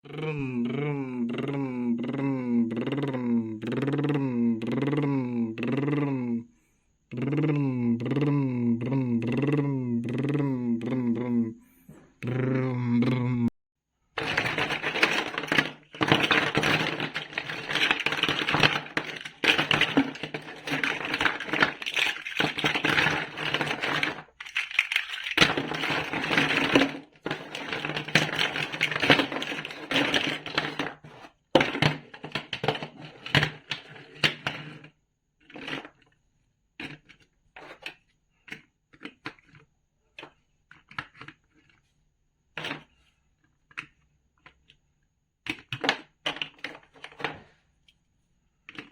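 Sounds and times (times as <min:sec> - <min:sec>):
plastic bricks clattering: 0:14.2 - 0:34.9, 0:42.6 - 0:43.0, 0:45.5 - 0:47.4, 0:48.7 - 0:48.9.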